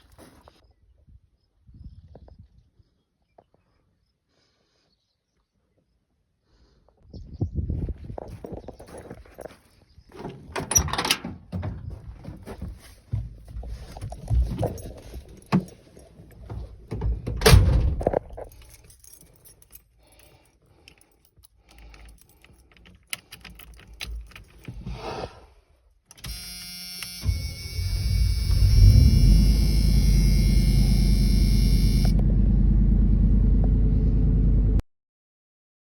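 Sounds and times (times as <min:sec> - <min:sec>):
knocks and thunks: 0:10.2 - 0:15.7, 0:16.4 - 0:18.4
keys jangling: 0:13.8 - 0:24.9
steady droning rumble: 0:27.5 - 0:34.8.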